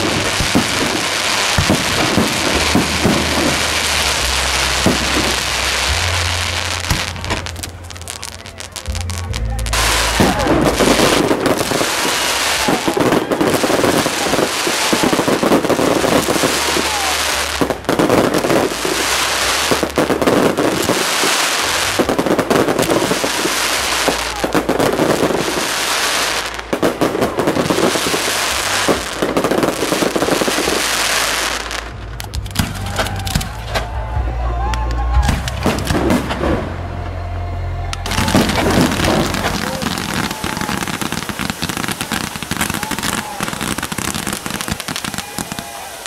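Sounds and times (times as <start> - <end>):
fireworks bangs and crackling: 0.0 - 37.2, 38.0 - 46.0.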